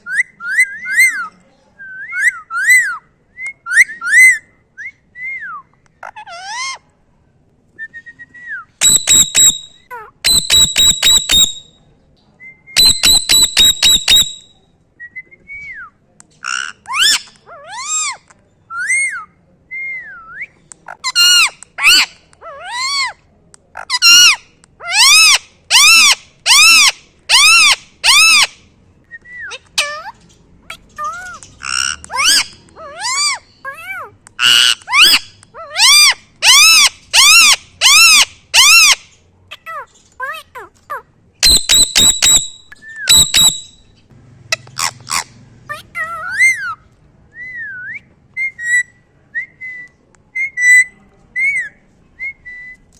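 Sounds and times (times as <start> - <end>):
parrot squawking: 8.8 - 11.7, 12.8 - 14.5, 23.8 - 28.5, 29.7 - 43.8, 44.5 - 46.8.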